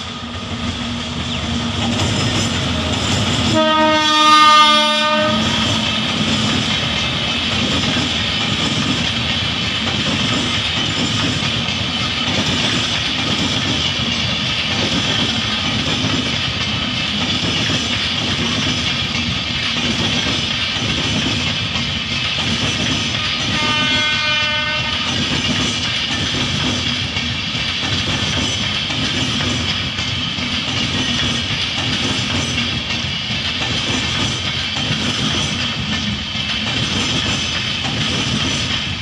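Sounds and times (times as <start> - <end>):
train coaches rumbling over track: 0.0 - 39.0
train horn blast: 3.5 - 5.8, 23.4 - 25.2.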